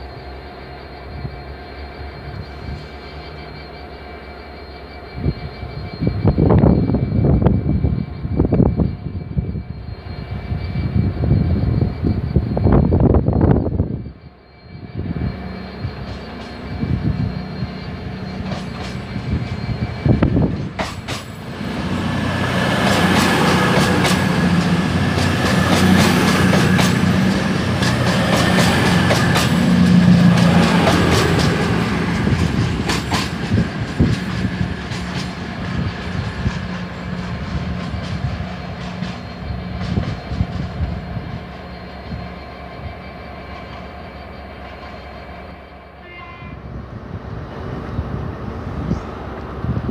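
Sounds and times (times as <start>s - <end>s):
diesel train engine passing: 0.0s - 49.9s
wheels clicking over rail joints: 22.7s - 40.8s.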